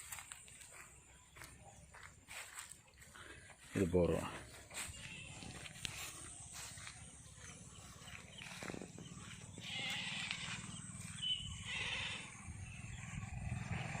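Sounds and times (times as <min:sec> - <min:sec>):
goats bleating: 0:04.7 - 0:05.8, 0:09.2 - 0:12.5.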